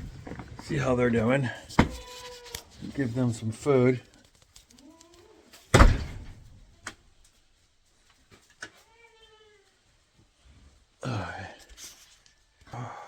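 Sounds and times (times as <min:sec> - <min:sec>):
barn door banging shut: 0:01.7 - 0:02.0, 0:05.7 - 0:06.6.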